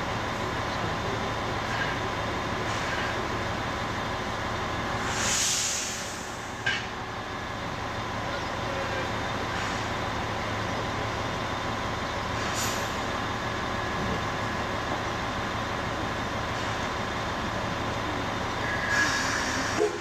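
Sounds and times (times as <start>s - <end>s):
train running noise: 0.0s - 20.0s
short hisses: 5.0s - 6.3s.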